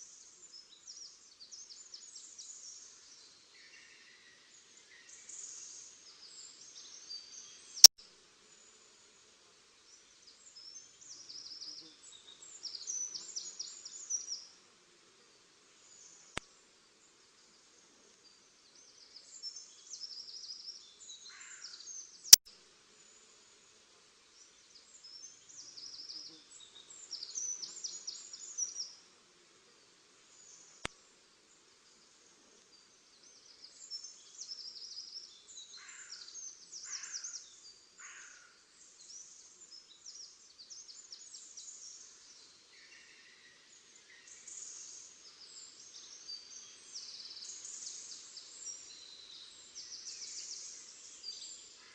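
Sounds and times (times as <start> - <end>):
small birds twittering: 29.8 - 51.9.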